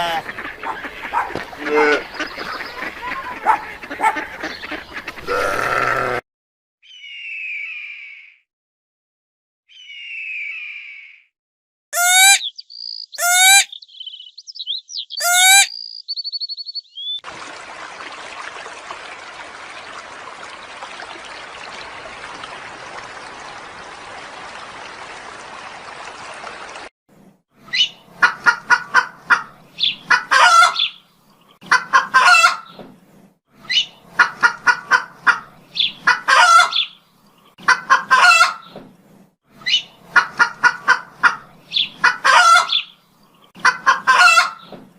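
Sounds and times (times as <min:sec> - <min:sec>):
chickens calling: 0:00.0 - 0:06.0, 0:12.0 - 0:17.2, 0:27.8 - 0:31.0, 0:31.6 - 0:32.8, 0:33.7 - 0:38.8, 0:39.7 - 0:44.8
sharp falling bird calls: 0:12.0 - 0:17.2.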